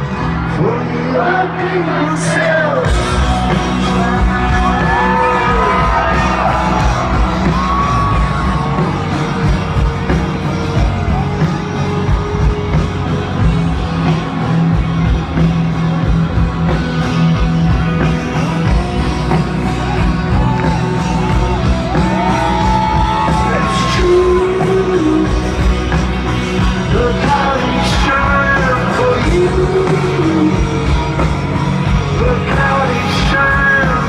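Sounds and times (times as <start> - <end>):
live rock band playing: 0.0 - 34.0
crowd shouting: 0.6 - 12.7, 18.0 - 24.9
person singing: 21.6 - 25.8, 26.6 - 34.0.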